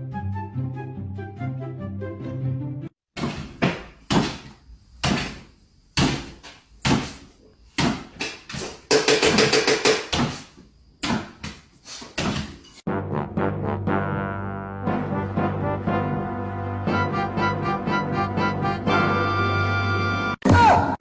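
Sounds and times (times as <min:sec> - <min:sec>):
sharp knocks: 0:03.2 - 0:07.2, 0:07.8 - 0:10.4.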